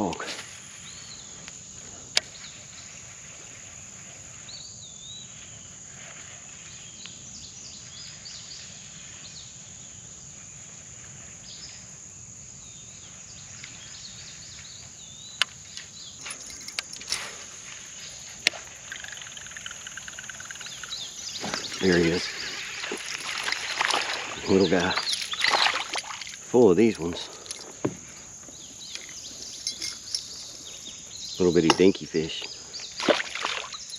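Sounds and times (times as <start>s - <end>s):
insects droning: 0.0s - 33.9s
bird chirping calls: 13.0s - 33.9s.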